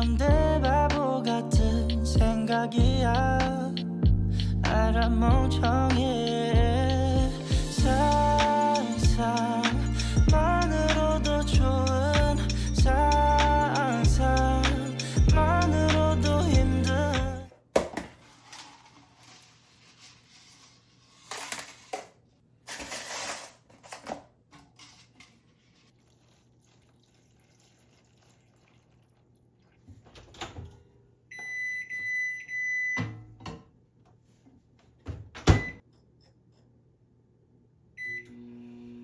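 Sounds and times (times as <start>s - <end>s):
household handling noises: 17.5s - 29.0s.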